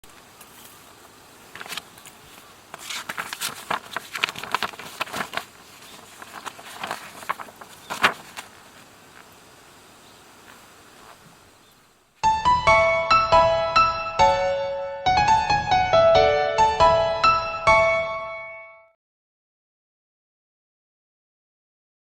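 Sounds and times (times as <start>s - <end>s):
sharp crackles and clicks: 1.5s - 8.6s
piano music: 12.2s - 19.0s.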